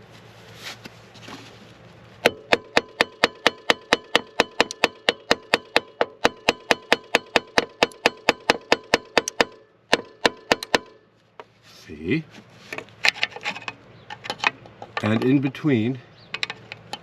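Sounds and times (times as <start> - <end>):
hammer tapping metal: 2.2 - 11.0.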